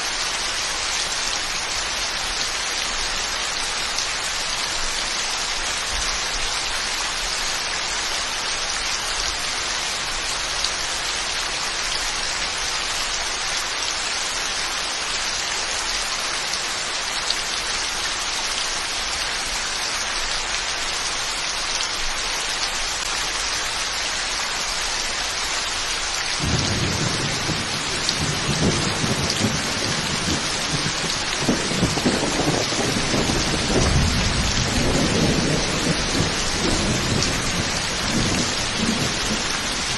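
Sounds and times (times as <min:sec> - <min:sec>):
heavy rain falling: 0:00.0 - 0:39.9
thunder rumble: 0:26.4 - 0:39.9.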